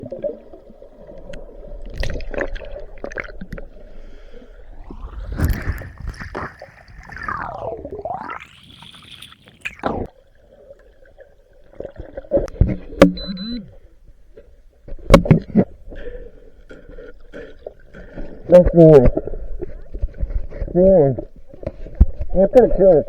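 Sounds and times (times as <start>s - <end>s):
underwater bubbling: 0.0s - 18.5s
metal detector tone: 12.9s - 13.7s.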